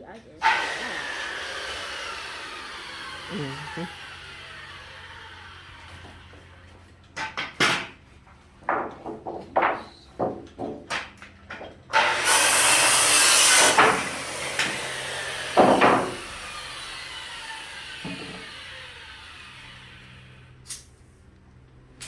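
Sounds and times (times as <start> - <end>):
power saw cutting wood: 0.3 - 7.9, 11.9 - 20.9
saw blade spinning down: 0.4 - 6.5, 12.0 - 20.9
knocks: 8.6 - 11.8, 15.5 - 16.2.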